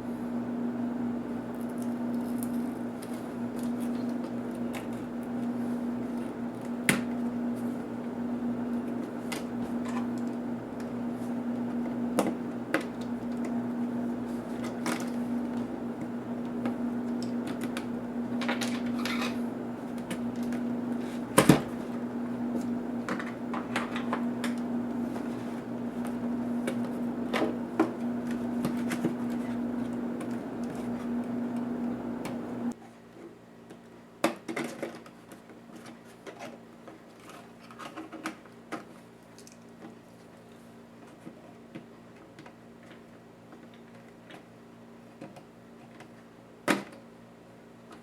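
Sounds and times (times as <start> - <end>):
steady hum: 0.0 - 32.8.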